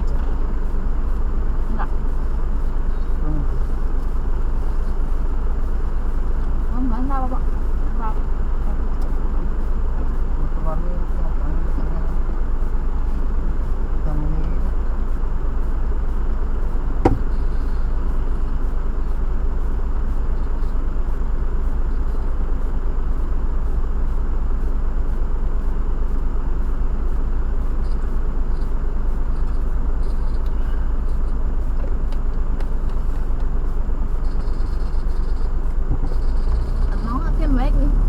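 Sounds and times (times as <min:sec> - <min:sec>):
tyres on wet road: 0:36.5 - 0:38.0.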